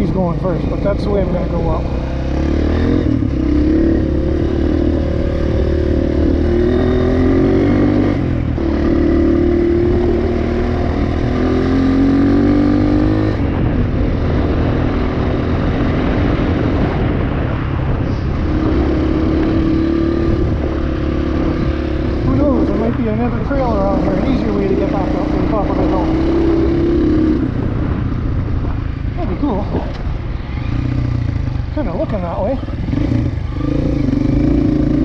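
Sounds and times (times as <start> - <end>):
dirt bike engine revving: 0.0 - 13.7, 18.3 - 28.0, 32.6 - 35.0.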